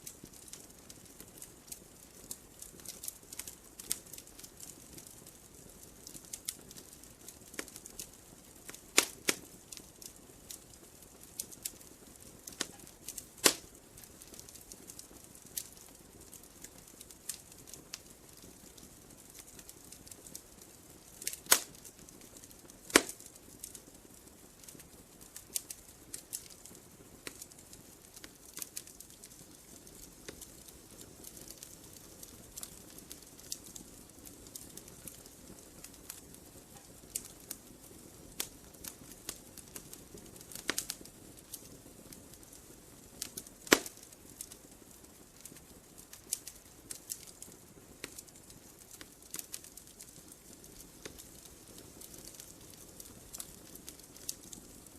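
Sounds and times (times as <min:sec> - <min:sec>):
faint hiss of fire: 0:00.0 - 0:54.9
wood fire crackling: 0:00.0 - 0:54.9.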